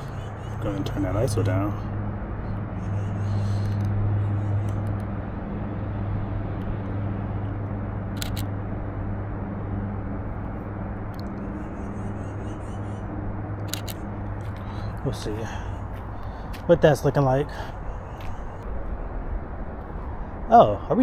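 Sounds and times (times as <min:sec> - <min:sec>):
low hum: 0:00.0 - 0:21.0
camera shutter double click: 0:08.2 - 0:08.5, 0:13.6 - 0:14.0.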